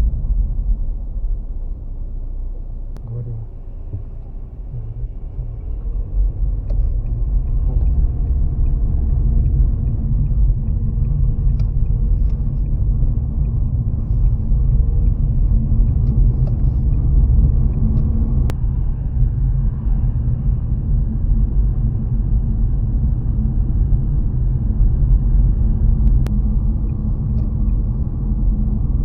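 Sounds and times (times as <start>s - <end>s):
car driving on wet road: 0.0s - 18.5s
faint light ticks: 6.6s - 13.6s, 26.0s - 28.0s.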